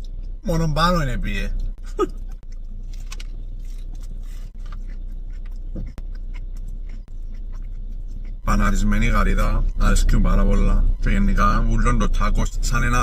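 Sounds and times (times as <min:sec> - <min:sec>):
chewing and biting food: 0:01.6 - 0:08.8.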